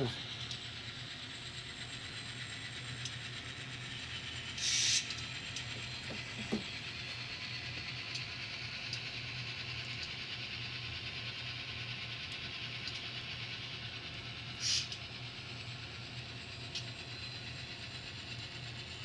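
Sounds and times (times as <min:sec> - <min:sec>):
model train motor hum: 0:00.0 - 0:19.0.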